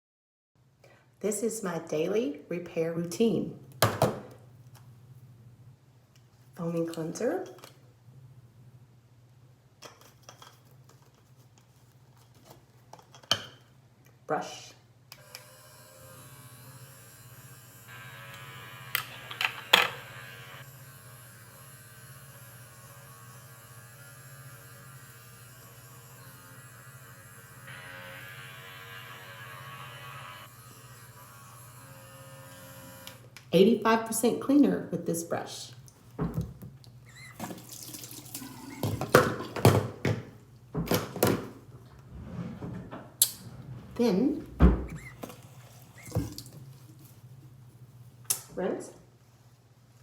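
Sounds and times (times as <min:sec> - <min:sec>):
electric cleansing brush humming: 0:15.2 - 0:33.3
water splashing in sink: 0:37.3 - 0:39.6, 0:44.6 - 0:46.7.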